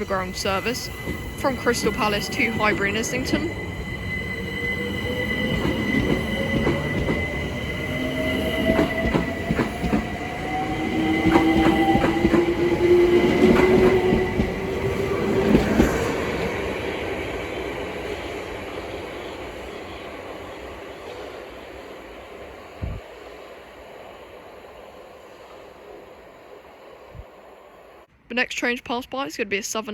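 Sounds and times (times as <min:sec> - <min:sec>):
electric train motors whining: 0:00.0 - 0:20.8.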